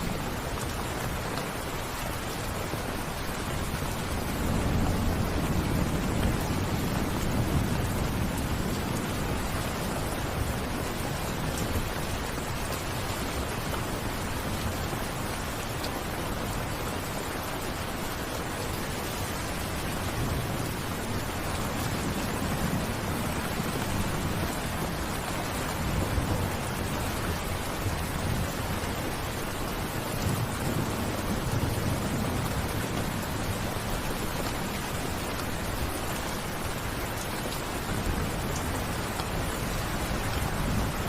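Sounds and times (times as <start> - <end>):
steady rain falling: 0.0 - 41.0
thunder rumbling: 3.4 - 12.4, 19.2 - 36.0.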